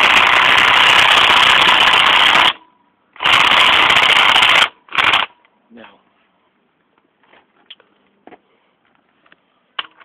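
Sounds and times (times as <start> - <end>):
person speaking: 5.7 - 6.2.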